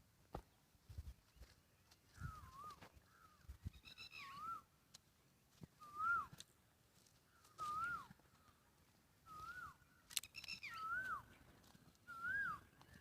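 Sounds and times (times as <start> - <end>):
animal whistled call: 12.1 - 12.7.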